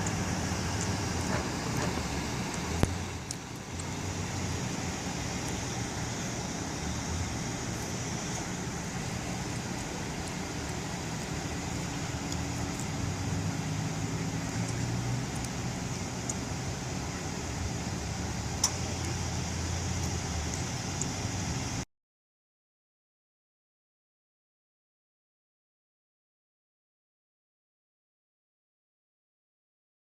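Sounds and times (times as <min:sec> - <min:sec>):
traffic noise with low hum: 0:00.0 - 0:21.9.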